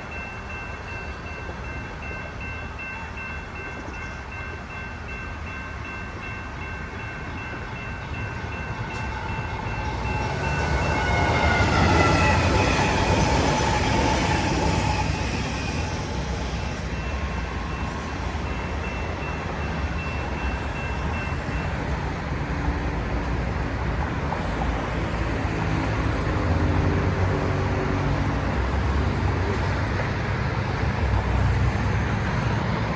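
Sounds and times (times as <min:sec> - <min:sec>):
train rumble and rail noise: 0:00.0 - 0:32.9
train horn: 0:09.0 - 0:15.9.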